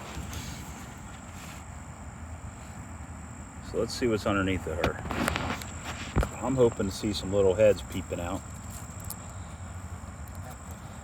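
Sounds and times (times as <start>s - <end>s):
high-pitched insect trill: 5.5s - 11.0s.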